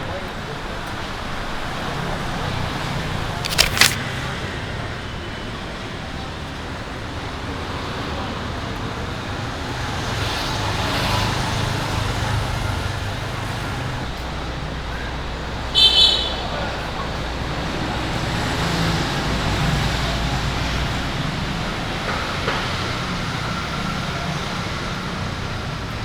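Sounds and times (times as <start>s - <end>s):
street traffic hum: 0.0s - 26.0s.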